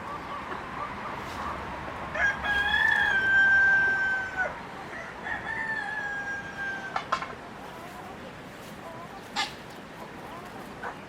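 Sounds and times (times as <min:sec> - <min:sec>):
rooster crowing: 0:02.1 - 0:07.0.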